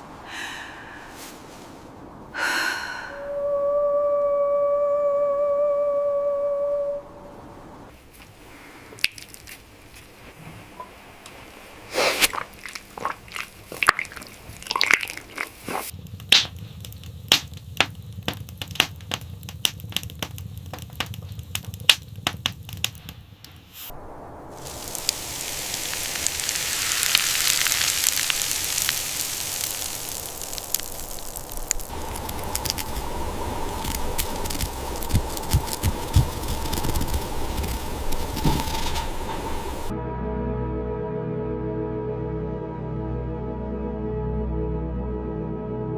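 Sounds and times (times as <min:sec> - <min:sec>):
crunching and crackling: 0:09.0 - 0:10.3, 0:12.1 - 0:23.6, 0:24.6 - 0:39.9
hiss: 0:11.8 - 0:12.3, 0:23.6 - 0:39.9
low rumble: 0:16.0 - 0:40.7.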